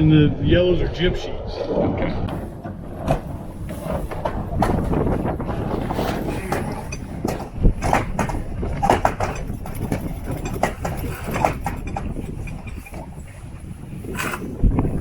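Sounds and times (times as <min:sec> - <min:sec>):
wind buffeting the microphone: 0:00.0 - 0:15.0
knocks and clicks: 0:02.3 - 0:13.2.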